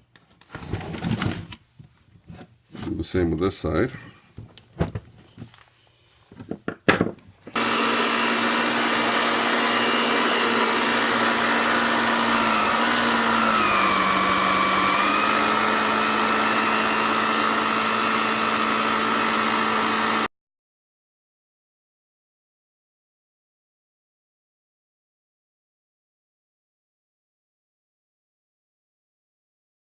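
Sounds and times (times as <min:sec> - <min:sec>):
vacuum cleaner motor whine: 0:07.5 - 0:20.3.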